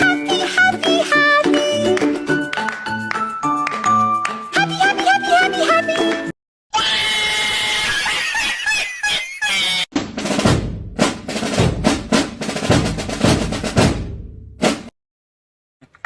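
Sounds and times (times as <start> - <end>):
loud drum hits with heavy bass: 10.0 - 14.9.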